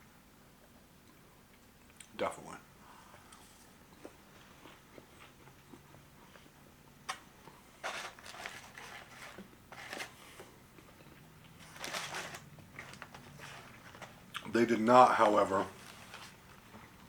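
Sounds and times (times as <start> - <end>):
quiet chewing: 3.0 - 7.7, 9.1 - 11.8
crackly rustles: 7.8 - 10.9, 11.5 - 14.3, 15.0 - 17.0.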